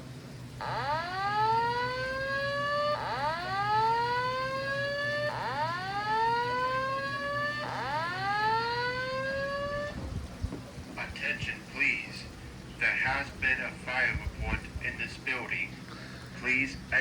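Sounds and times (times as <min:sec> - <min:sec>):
fire alarm whoop tone: 0:00.6 - 0:10.0.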